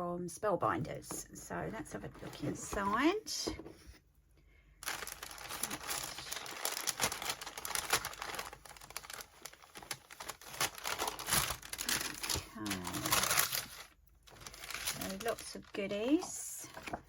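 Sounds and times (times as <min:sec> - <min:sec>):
packaging crinkling: 0:04.8 - 0:17.0.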